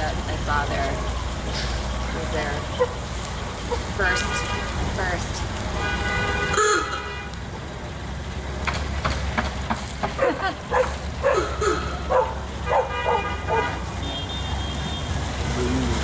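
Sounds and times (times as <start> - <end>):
dog barking: 10.2 - 13.8.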